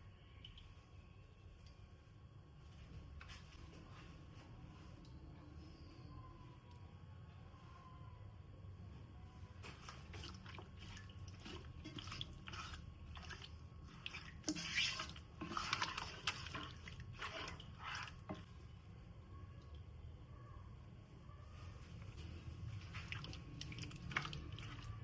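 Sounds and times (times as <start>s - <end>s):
water splashing and dripping: 9.7s - 18.5s, 22.8s - 25.0s.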